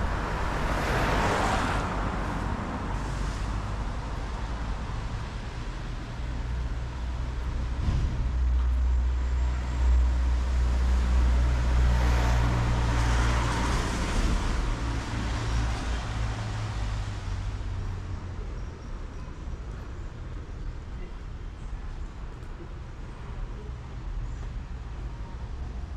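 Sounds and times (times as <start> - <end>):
tyre hiss on wet street: 2.4 - 6.0.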